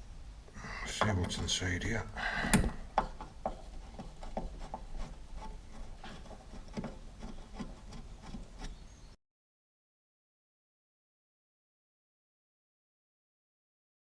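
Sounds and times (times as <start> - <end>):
light scraping of metal and plastic: 0.9 - 9.1
screwdriver removing screws: 2.4 - 8.8.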